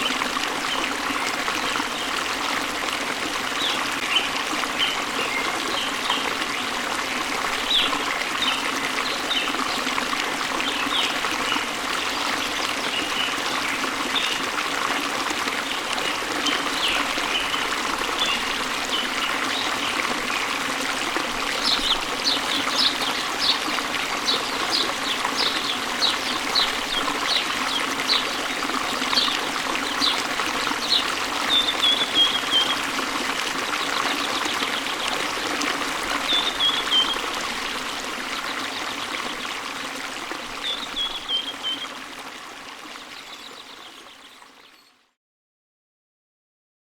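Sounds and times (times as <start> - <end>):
waterfall and stream running: 0.0 - 45.0
birds chirping: 21.6 - 32.9, 36.3 - 37.3.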